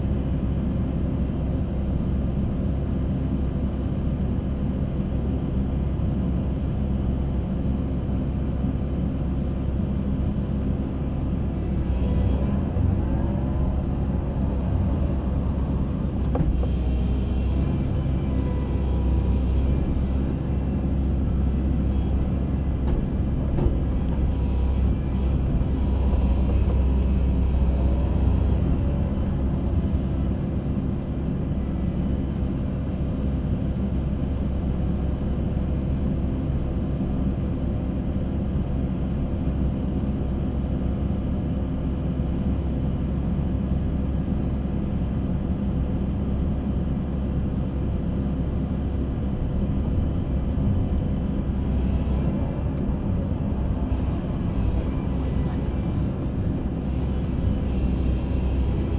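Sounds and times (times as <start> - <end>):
concrete mixer engine rumble: 9.6 - 33.5, 48.2 - 58.9.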